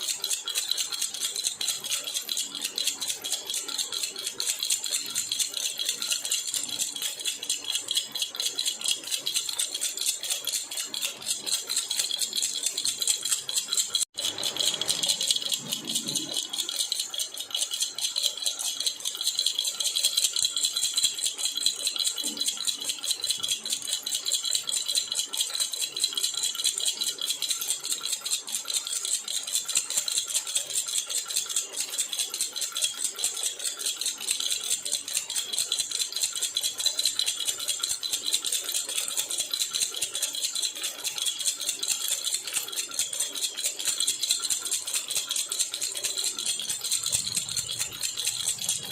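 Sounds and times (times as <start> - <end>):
baby rattle jingling: 12.6 - 17.6.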